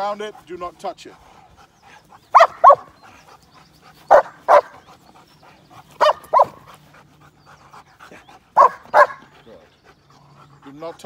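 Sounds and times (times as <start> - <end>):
dog barking: 2.3 - 2.9, 4.1 - 4.8, 6.0 - 6.6, 8.6 - 9.3.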